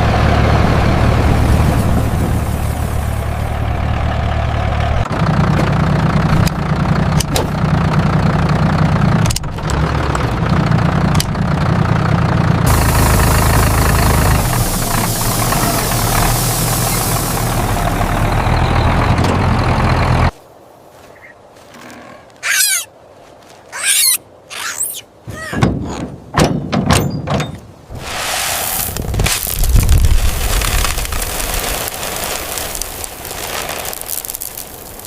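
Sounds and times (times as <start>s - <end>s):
tractor engine running: 0.0s - 20.4s, 28.8s - 35.0s
high squeals: 22.4s - 22.9s, 23.7s - 25.6s.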